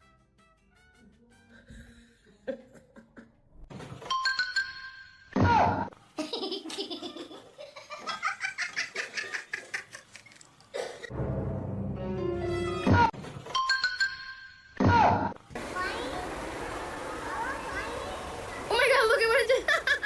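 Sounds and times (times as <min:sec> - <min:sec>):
laughter bursts: 0:19.4 - 0:20.0.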